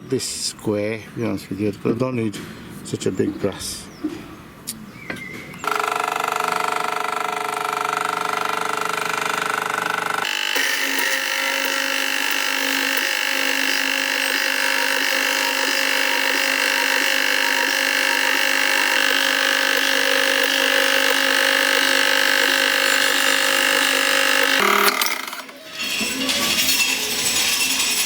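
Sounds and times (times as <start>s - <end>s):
electric power tool whining: 5.6s - 28.0s.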